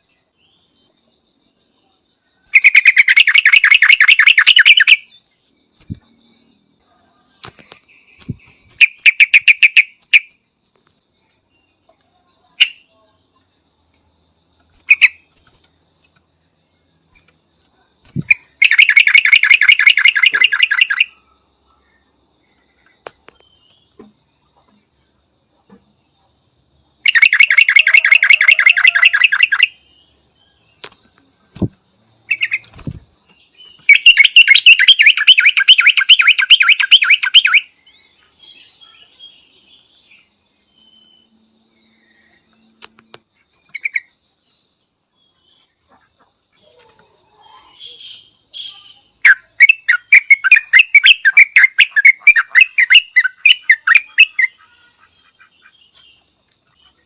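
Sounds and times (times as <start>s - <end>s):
bird chattering calls: 2.5s - 5.0s, 8.2s - 10.3s, 14.8s - 15.2s, 18.1s - 21.1s, 33.8s - 37.6s, 47.6s - 55.7s.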